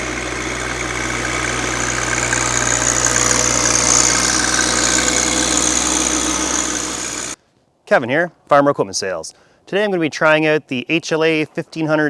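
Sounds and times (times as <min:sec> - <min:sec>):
tractor diesel engine idling: 0:00.0 - 0:07.4.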